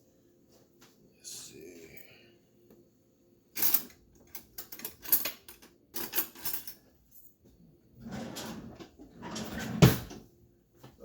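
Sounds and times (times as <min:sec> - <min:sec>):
metal utensils clattering: 0:03.6 - 0:06.8.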